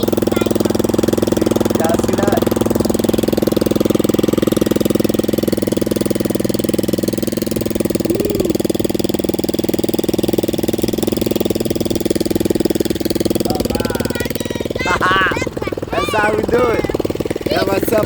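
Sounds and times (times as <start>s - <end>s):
engine with open exhaust: 0.0s - 18.0s.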